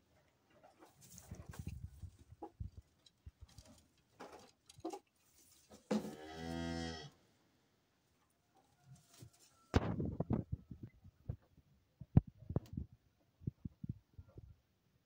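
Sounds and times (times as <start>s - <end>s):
cow mooing: 6.0s - 7.2s.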